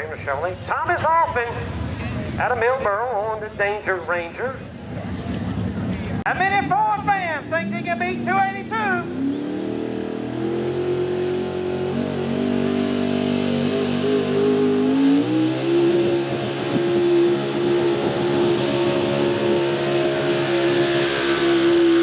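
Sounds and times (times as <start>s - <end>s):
truck engine at high revs: 0.0s - 3.7s, 4.4s - 22.0s.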